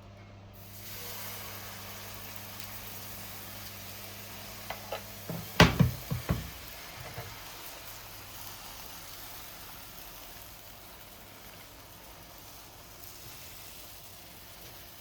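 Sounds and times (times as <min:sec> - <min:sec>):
batter frying in a pan: 0:00.6 - 0:15.0
loud thump: 0:05.3 - 0:06.6
knocks and clatters: 0:05.3 - 0:07.3.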